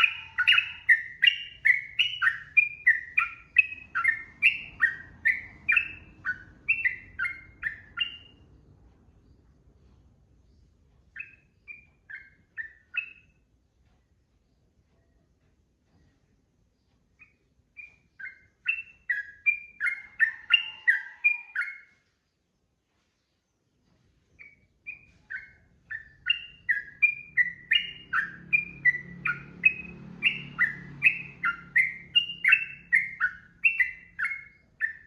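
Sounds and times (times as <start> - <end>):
bulbul singing whistled notes: 0.0 - 8.4, 24.4 - 35.0.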